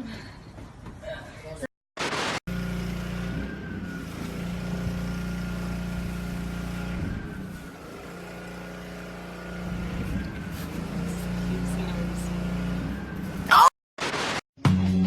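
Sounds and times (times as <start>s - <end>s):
loud burst of noise: 2.0s - 9.9s, 13.4s - 14.4s
engine humming with whine: 2.5s - 13.7s.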